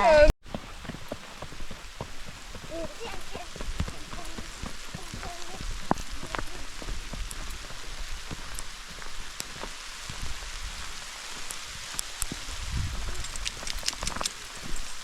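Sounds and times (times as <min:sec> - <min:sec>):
raindrops ticking close by: 0:00.4 - 0:15.0
steady rain hiss: 0:00.4 - 0:15.0
low rumble: 0:12.4 - 0:13.5.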